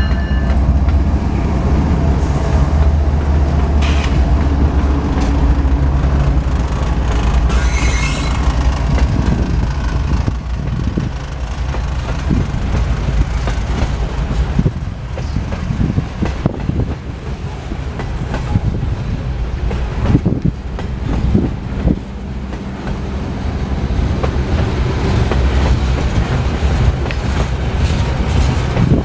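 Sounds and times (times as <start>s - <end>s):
diesel locomotives rumbling: 0.0s - 29.0s
train wheels rumbling: 0.0s - 29.0s
wheels clacking over rail joints: 1.9s - 29.0s.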